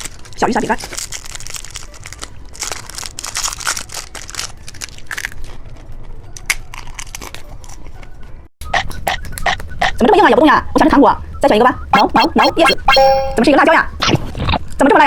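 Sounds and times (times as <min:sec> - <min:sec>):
crunching and chewing biscuit: 0:00.0 - 0:10.0.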